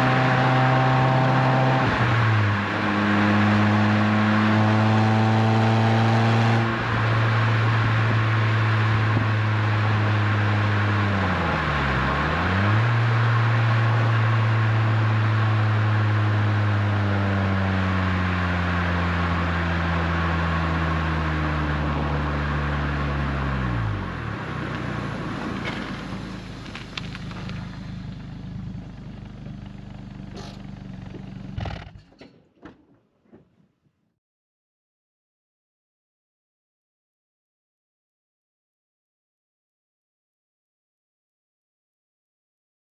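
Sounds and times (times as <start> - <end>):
car engine cruising: 0.0 - 32.4
road and wind noise: 0.0 - 33.4.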